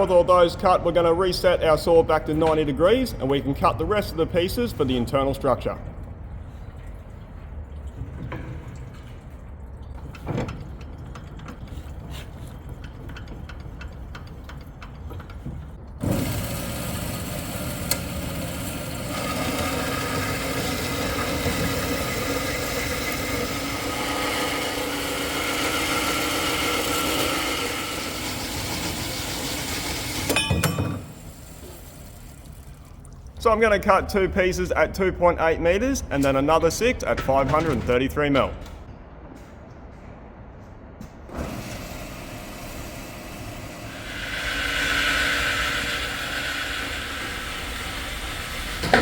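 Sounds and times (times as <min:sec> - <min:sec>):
power saw cutting steel: 0:16.0 - 0:30.5, 0:41.7 - 0:49.0.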